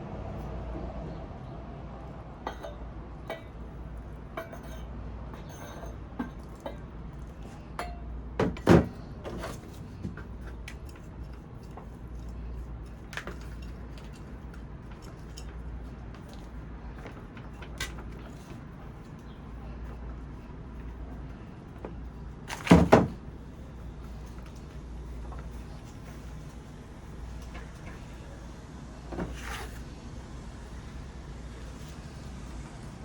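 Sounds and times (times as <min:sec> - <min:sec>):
hard objects clinking and knocking: 0:02.5 - 0:19.4.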